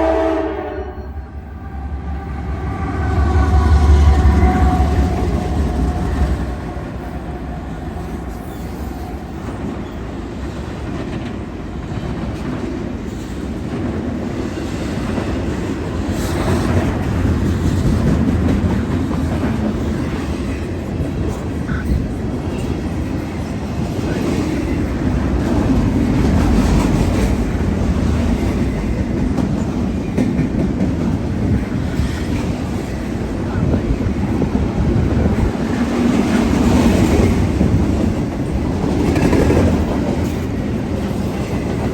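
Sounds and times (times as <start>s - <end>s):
train wheels clattering over rails: 8.4s - 41.9s.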